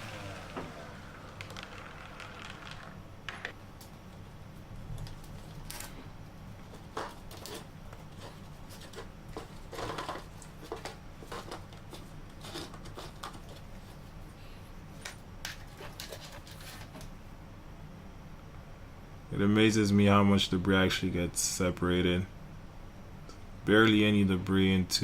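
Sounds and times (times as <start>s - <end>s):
shop vacuum humming: 0.0s - 3.6s.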